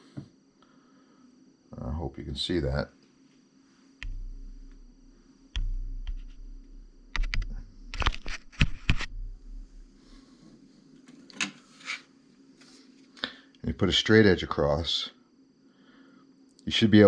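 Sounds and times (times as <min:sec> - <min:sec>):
dull bumps: 0:04.0 - 0:10.1
sharp clicks and light knocks: 0:07.1 - 0:09.1.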